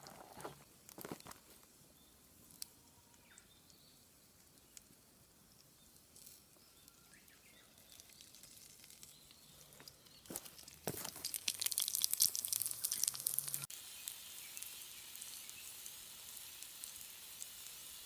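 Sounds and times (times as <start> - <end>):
faint high chirps: 1.9 - 10.4.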